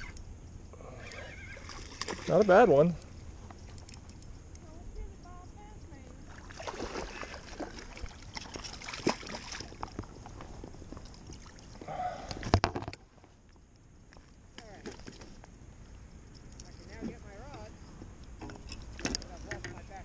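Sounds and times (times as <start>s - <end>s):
water splashing and sloshing: 1.5s - 2.9s, 6.2s - 16.0s.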